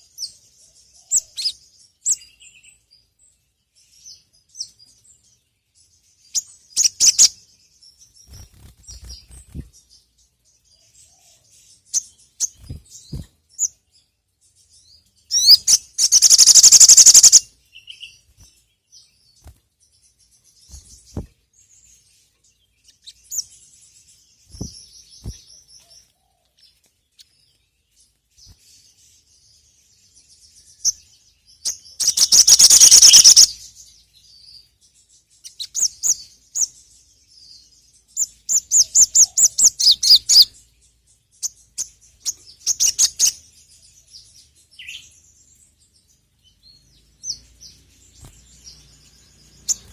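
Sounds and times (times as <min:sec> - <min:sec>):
bird chirping: 0:00.0 - 0:49.9
rapid high bird trill: 0:15.3 - 0:18.2, 0:32.0 - 0:33.6.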